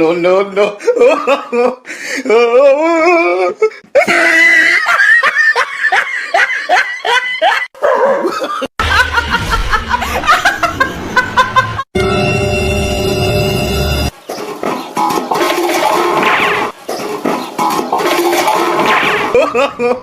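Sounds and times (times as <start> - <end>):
people laughing hard: 2.4 - 11.9, 19.3 - 20.0.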